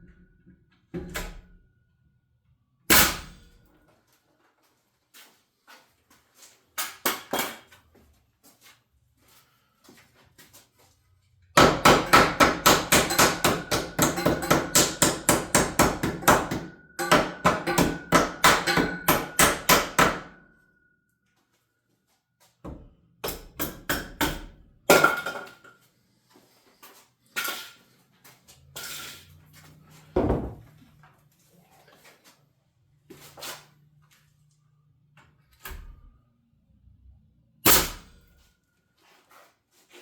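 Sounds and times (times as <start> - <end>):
hammer striking rapidly: 11.6 - 20.4.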